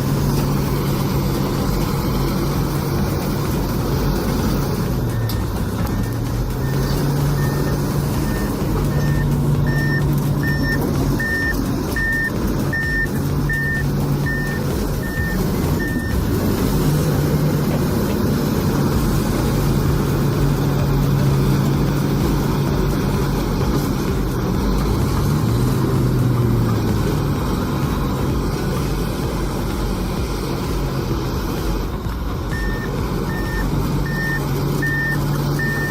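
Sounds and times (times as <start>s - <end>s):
diesel engine running: 0.0s - 35.9s
reversing alarm beeping: 4.4s - 16.4s, 32.5s - 35.9s.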